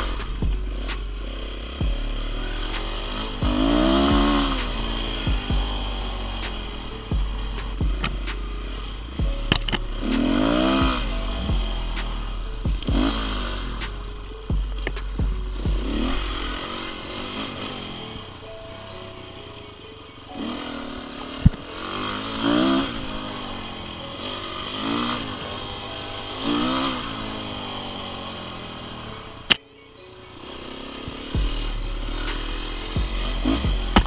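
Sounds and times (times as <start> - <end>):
motorcycle engine revving: 0.0 - 34.0
sharp clicks: 6.4 - 10.6.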